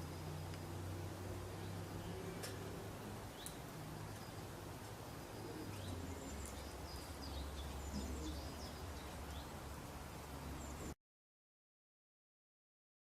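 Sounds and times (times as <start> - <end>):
steady low hum and hiss: 0.0 - 11.0
faint bird chirps: 5.2 - 9.6.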